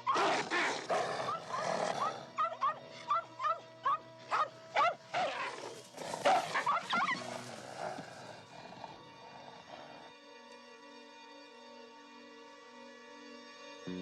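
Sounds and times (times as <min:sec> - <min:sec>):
background music: 0:00.0 - 0:14.0
small dog yapping: 0:00.1 - 0:08.1.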